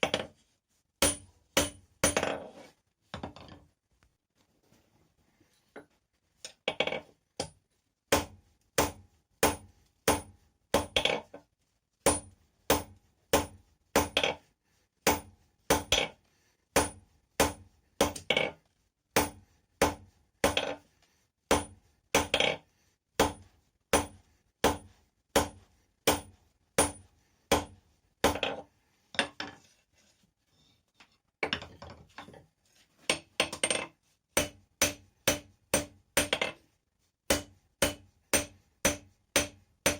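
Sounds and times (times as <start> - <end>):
hammer striking steel on anvil: 1.0 - 2.3, 34.4 - 36.5, 37.3 - 39.9.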